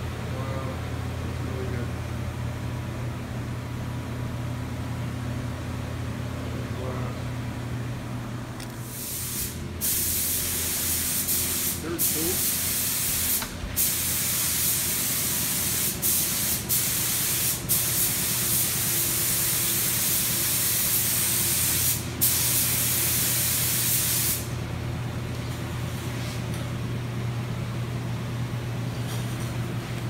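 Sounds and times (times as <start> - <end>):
steady low hum: 0.0 - 30.0
paint spray gun hissing: 8.8 - 24.5.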